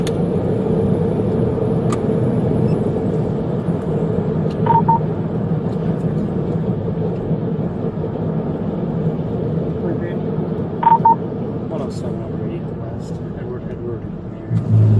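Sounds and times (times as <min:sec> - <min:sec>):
vehicle rumble and hum: 0:00.0 - 0:14.9
short electronic beeps: 0:04.6 - 0:05.0, 0:10.8 - 0:11.2.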